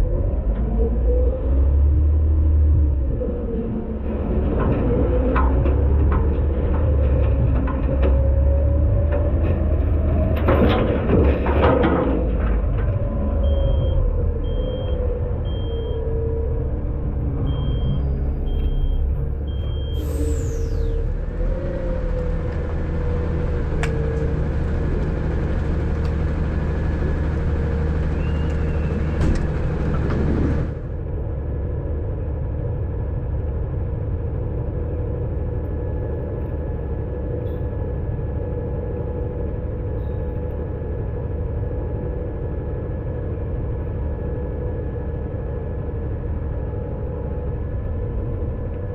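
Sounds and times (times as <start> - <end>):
diesel engine rumbling: 0.0 - 48.9
faint beeper beeping: 17.4 - 20.7
air hissing with whistle: 19.8 - 21.1.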